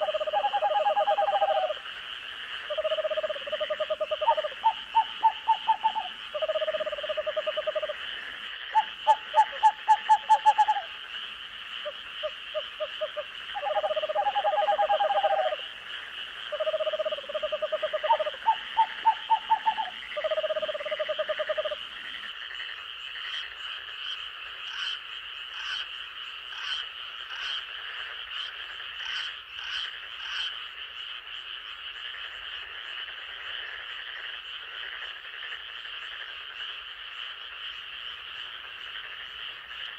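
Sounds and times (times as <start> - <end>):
faint high ticking calls: 0.0 - 2.0, 2.6 - 22.3
frogs croaking: 0.0 - 39.9
high-pitched frog chorus: 0.0 - 39.9.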